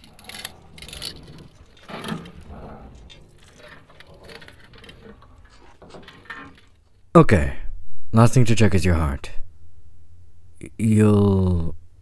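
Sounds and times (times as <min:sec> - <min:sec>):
hand tools clicking on metal parts: 0:00.0 - 0:06.8.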